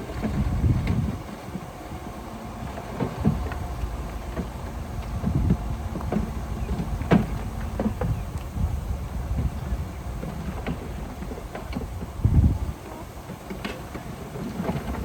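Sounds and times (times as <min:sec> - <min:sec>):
diesel machine rumbling: 0:00.0 - 0:15.0.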